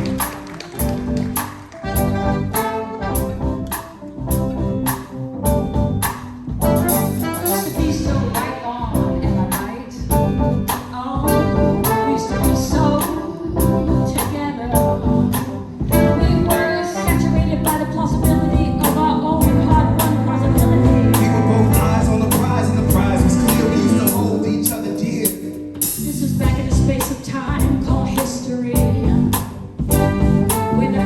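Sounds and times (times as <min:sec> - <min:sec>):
drum beat: 0:00.0 - 0:04.4, 0:19.4 - 0:24.2
brass: 0:00.0 - 0:04.5, 0:06.6 - 0:09.4, 0:11.3 - 0:15.3, 0:15.9 - 0:25.5, 0:28.8 - 0:31.0
live band playing: 0:00.0 - 0:31.0
person singing: 0:15.9 - 0:27.6.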